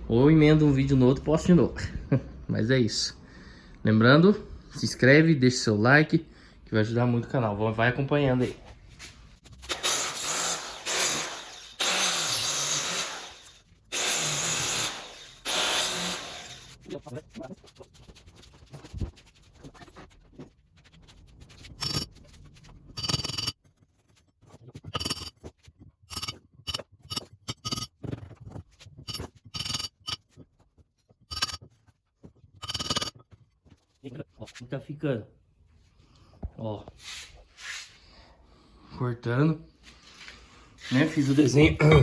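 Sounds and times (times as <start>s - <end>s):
angle grinder cutting masonry: 9.7s - 16.8s, 21.8s - 22.1s, 23.0s - 23.5s, 24.9s - 25.3s, 26.1s - 27.9s, 29.1s - 30.2s, 32.6s - 33.1s
short metallic scraping strokes: 9.7s - 16.8s, 21.8s - 22.1s, 23.0s - 23.5s, 26.1s - 27.9s, 29.1s - 30.2s.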